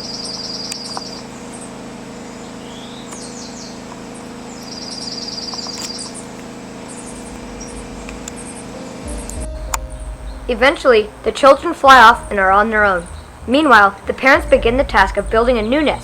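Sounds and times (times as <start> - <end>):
bird trilling: 0.0 - 16.0
down-slurred bird notes: 0.0 - 16.0
steady low hum: 0.0 - 16.0
short high bird chips: 2.6 - 9.4.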